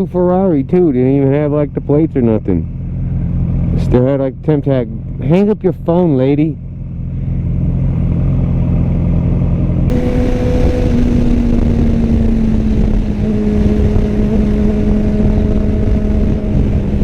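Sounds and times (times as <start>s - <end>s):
motorcycle engine running: 0.0s - 17.0s
wind rush: 9.9s - 17.0s.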